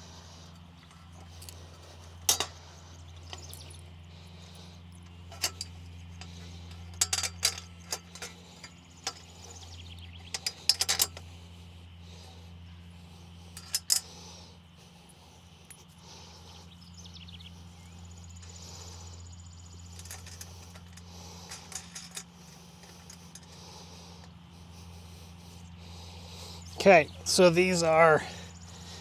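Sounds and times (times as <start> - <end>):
steady low hum: 0.0 - 29.0
metal parts clinking: 0.9 - 2.6, 3.2 - 3.9, 5.3 - 5.7, 6.7 - 9.3, 10.3 - 11.2, 13.6 - 14.0, 19.9 - 23.6.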